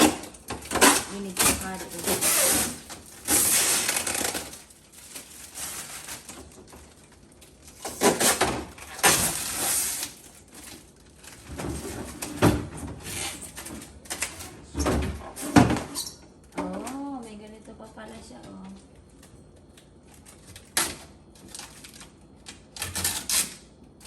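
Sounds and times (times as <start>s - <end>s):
packing plastic rustling and ripping: 0.0s - 14.5s, 20.0s - 24.0s.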